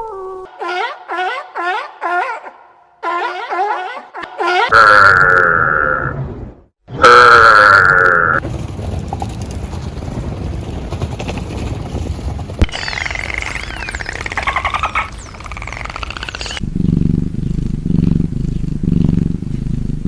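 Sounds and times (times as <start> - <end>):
animal calling loudly: 0.5 - 6.1, 12.7 - 16.6
low rumble: 8.4 - 20.0.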